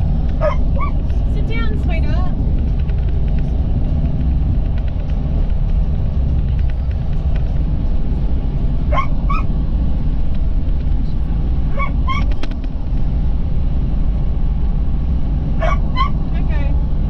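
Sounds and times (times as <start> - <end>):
road rumble inside vehicle: 0.0 - 17.0
dog whining: 0.4 - 1.0, 8.9 - 9.5, 11.7 - 12.3, 15.6 - 16.2.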